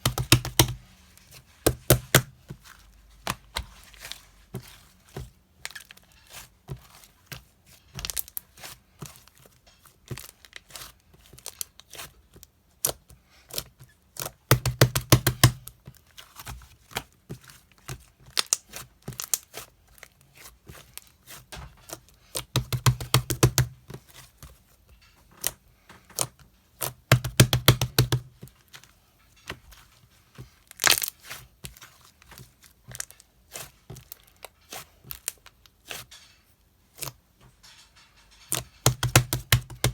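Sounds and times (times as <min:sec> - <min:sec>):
clicks and taps: 0:00.0 - 0:00.8, 0:22.4 - 0:23.8, 0:27.1 - 0:28.3, 0:38.6 - 0:39.9
tearing and crinkling: 0:30.7 - 0:36.3.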